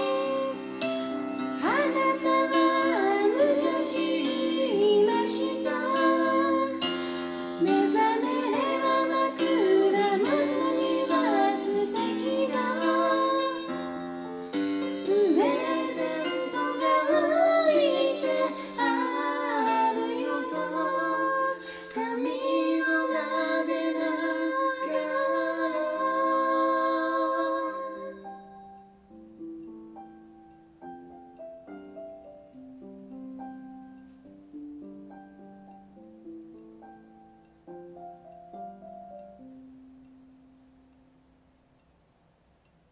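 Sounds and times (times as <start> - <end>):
female vocals singing ballad: 0.0 - 28.3
piano backing track: 0.0 - 41.8.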